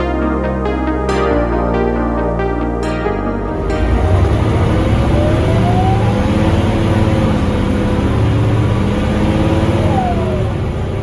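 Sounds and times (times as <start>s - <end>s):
bus diesel engine running: 3.4s - 11.0s
drivetrain whine: 3.4s - 11.0s.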